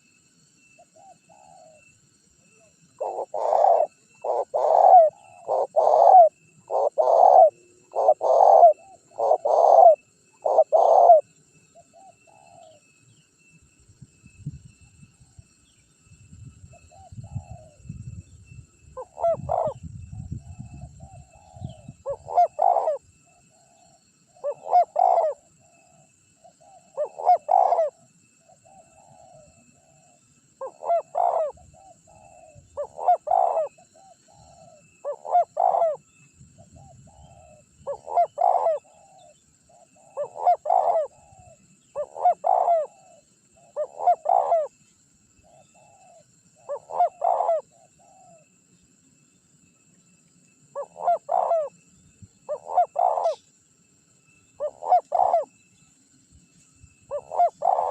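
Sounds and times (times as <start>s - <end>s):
dove cooing: 1.0s - 1.9s, 2.5s - 12.8s, 19.0s - 44.8s, 45.4s - 48.5s, 50.7s - 51.7s, 52.4s - 53.4s, 54.6s - 55.6s, 57.1s - 57.9s.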